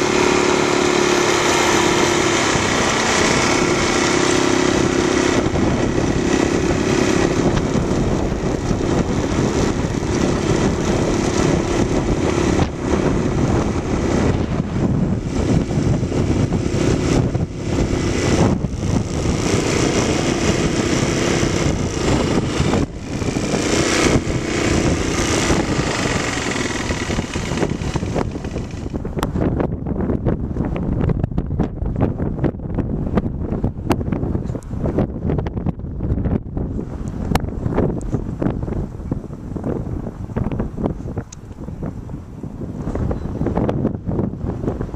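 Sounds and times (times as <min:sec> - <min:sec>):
biplane radial engine running: 0:00.0 - 0:29.5.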